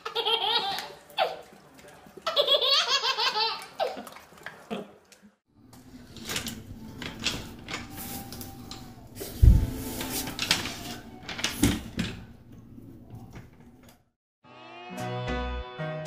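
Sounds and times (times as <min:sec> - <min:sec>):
baby laughing: 0:00.0 - 0:01.5, 0:02.2 - 0:04.2.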